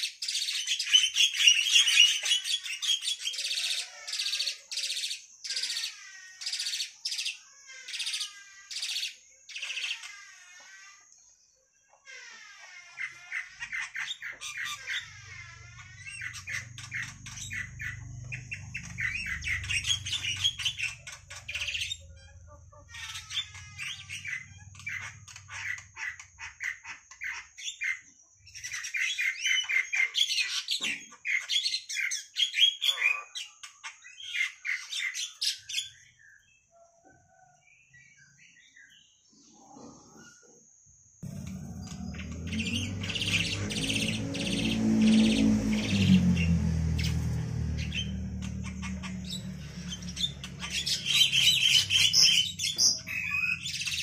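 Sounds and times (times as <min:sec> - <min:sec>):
pet bird chirping and squawking: 0:00.0 - 0:10.9, 0:12.0 - 0:35.8, 0:41.2 - 0:54.0
low rumble: 0:41.2 - 0:53.6.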